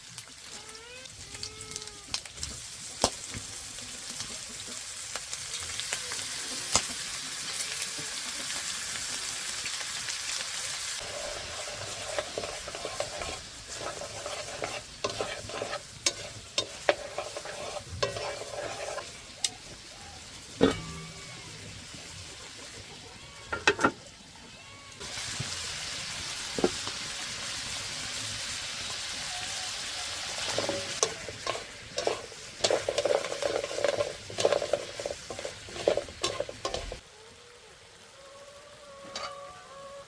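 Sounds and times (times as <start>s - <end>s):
food sizzling in a pan: 0.0s - 40.0s
utensil scraping pan: 11.0s - 19.7s, 20.5s - 21.7s, 30.3s - 37.0s.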